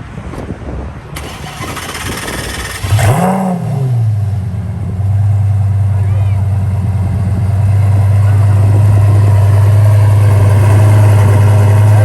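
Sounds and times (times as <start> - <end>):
engine starter cranking: 1.2 - 3.4
car engine revving and idling: 1.2 - 12.0.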